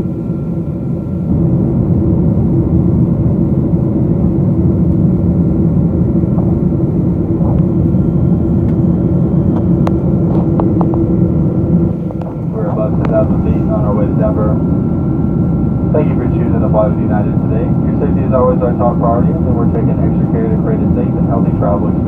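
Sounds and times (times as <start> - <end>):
aircraft cabin engine roar: 0.0 - 22.0
steady hum: 0.0 - 22.0.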